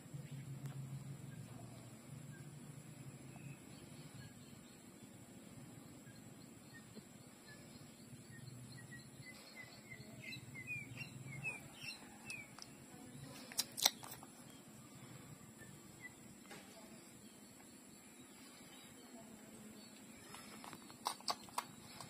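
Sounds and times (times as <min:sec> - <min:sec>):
bird chirping: 0:00.0 - 0:22.0
sharp clicks: 0:13.4 - 0:14.3, 0:20.3 - 0:22.0.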